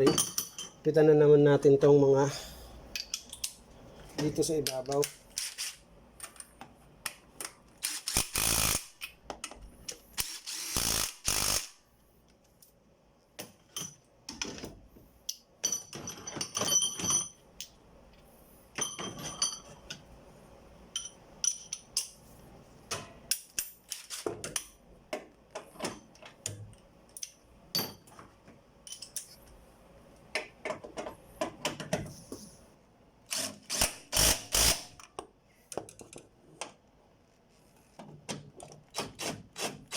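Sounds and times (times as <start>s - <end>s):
cordless impact wrench bursts: 7.8s - 9.0s, 10.2s - 11.8s, 33.3s - 35.0s
tools and metal parts rattling: 15.6s - 17.8s, 18.8s - 20.0s, 20.9s - 22.2s, 28.8s - 29.4s.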